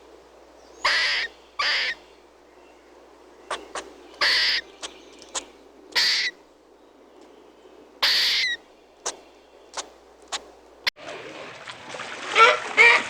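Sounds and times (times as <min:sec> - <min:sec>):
animal hissing screeches: 0:04.2 - 0:04.6, 0:05.3 - 0:06.3, 0:08.0 - 0:08.6.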